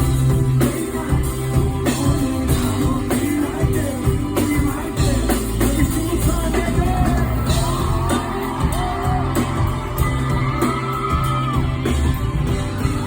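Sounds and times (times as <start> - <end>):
guitar bass and drums: 0.0 - 13.0
yelling: 6.8 - 13.0.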